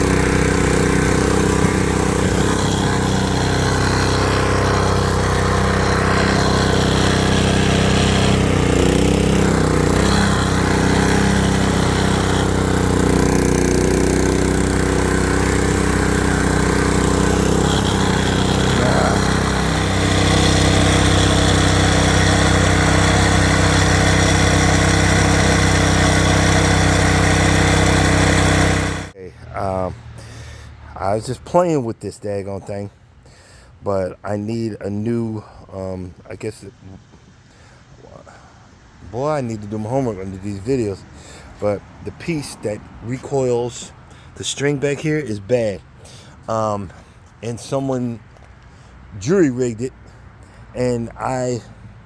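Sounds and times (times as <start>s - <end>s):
small gasoline engine running: 0.0s - 30.6s.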